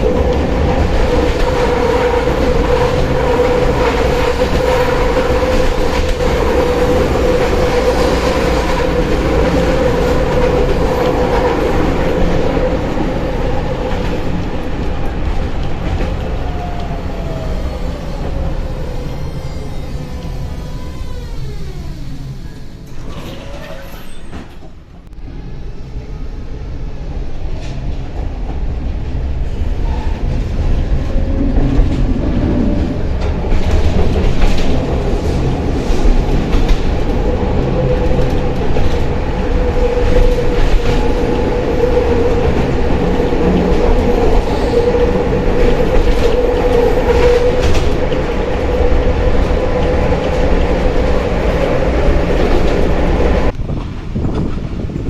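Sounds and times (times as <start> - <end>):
tram rumbling on rails: 0.0 - 55.0
steady whine: 15.1 - 23.2.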